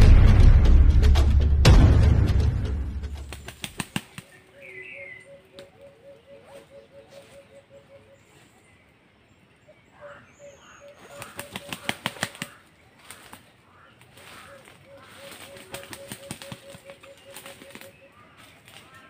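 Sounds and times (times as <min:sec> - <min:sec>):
higher bird call: 0:04.3 - 0:08.3, 0:09.9 - 0:19.0.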